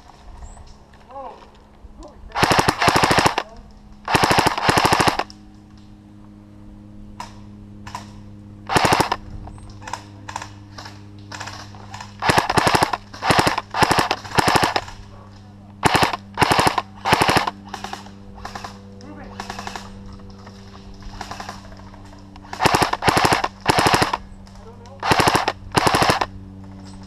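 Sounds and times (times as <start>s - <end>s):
low hum: 0.0s - 27.0s
airsoft rifle bursts: 2.4s - 3.5s, 4.1s - 5.3s, 8.7s - 9.2s, 9.8s - 15.0s, 15.8s - 20.0s, 22.4s - 24.3s, 25.0s - 26.3s.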